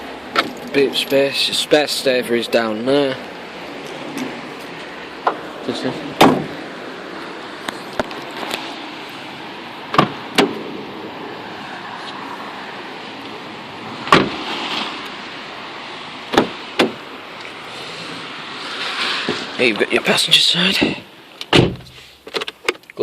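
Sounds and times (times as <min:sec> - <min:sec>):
car doors and boot shutting: 0:06.1 - 0:06.6, 0:09.9 - 0:10.7, 0:14.0 - 0:15.0, 0:16.3 - 0:17.1, 0:20.8 - 0:22.8.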